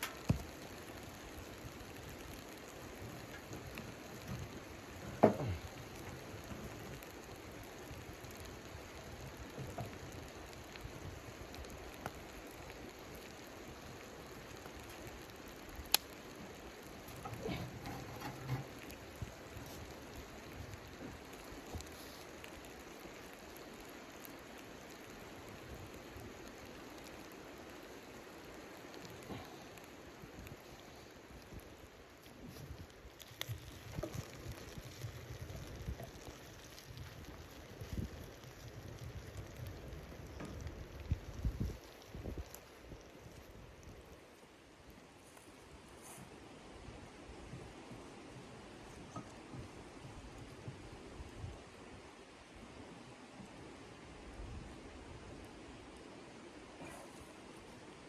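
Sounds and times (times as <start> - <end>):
faint ticks: 0.0 - 44.2
rain pattering on tent fabric: 0.0 - 58.0.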